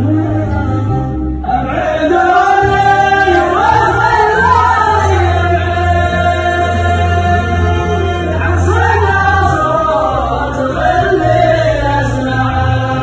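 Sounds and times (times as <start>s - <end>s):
person singing slow melody: 0.0s - 13.0s
steady low musical backing: 0.0s - 13.0s.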